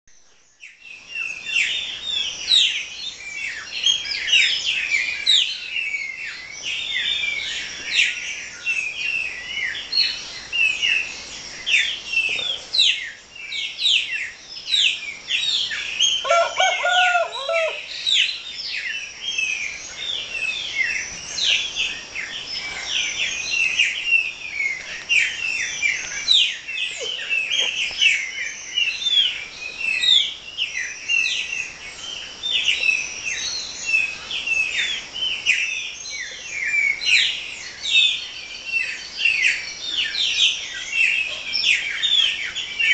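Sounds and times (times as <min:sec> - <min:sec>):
small birds chirping: 0:00.1 - 0:42.9
rooster crowing: 0:16.2 - 0:17.9.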